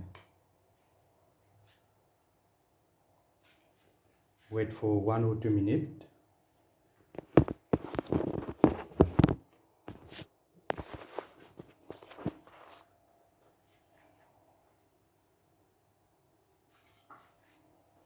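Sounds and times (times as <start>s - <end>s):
knocks and scuffing: 7.2s - 12.9s.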